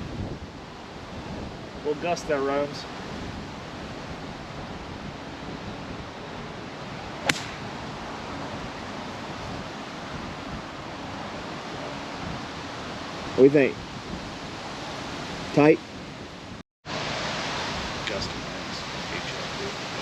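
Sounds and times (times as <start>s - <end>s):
wind buffeting microphone: 0.0s - 16.6s
golf club striking ball: 7.2s - 7.9s.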